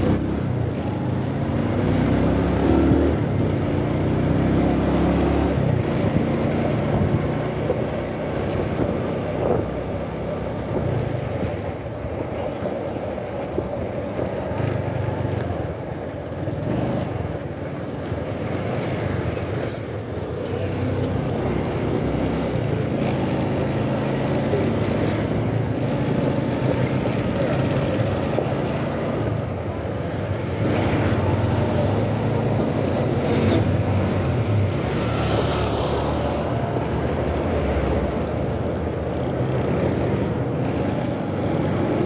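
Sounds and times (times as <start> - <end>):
wind on microphone: 5.5 - 14.6
motorcycle engine running: 21.1 - 35.0.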